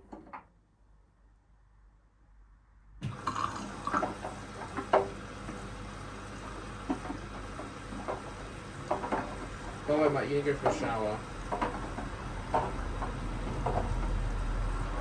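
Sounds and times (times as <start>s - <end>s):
water running and splashing: 3.0s - 15.0s.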